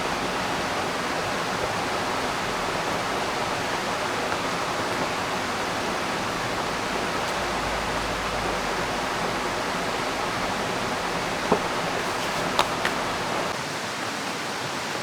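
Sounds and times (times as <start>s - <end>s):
river water rushing: 0.0s - 13.8s.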